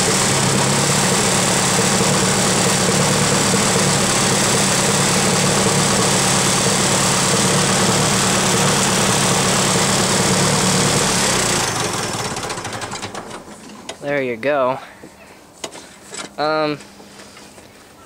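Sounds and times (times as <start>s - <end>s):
tractor engine idling: 0.0s - 13.9s.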